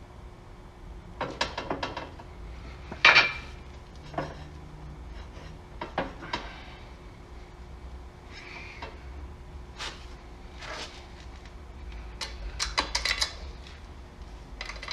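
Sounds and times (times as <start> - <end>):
metallic clicks and clanks: 12.2 - 13.5, 14.6 - 14.9.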